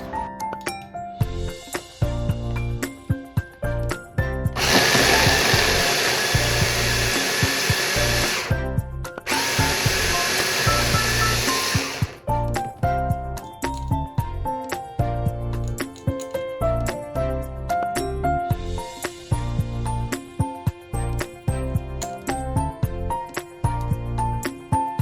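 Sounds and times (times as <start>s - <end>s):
background music: 0.0s - 25.0s
electric motor appliance whirring: 4.6s - 8.6s, 9.3s - 12.3s.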